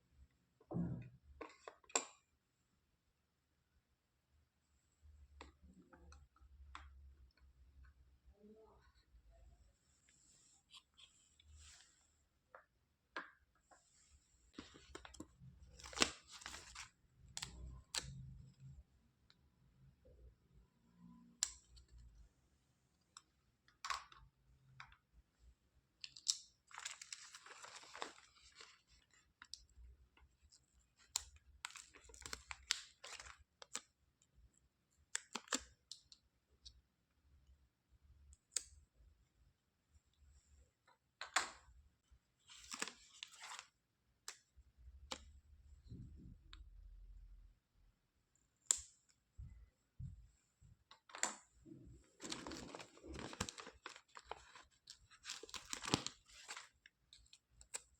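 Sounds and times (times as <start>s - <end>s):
plastic rustling: 52.0s - 57.3s.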